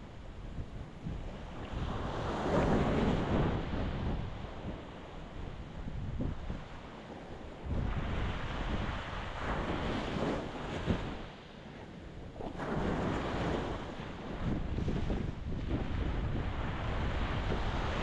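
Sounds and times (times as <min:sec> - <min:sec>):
wind buffeting microphone: 0:00.0 - 0:18.0
ocean waves breaking on rocks: 0:01.0 - 0:05.3, 0:06.2 - 0:18.0.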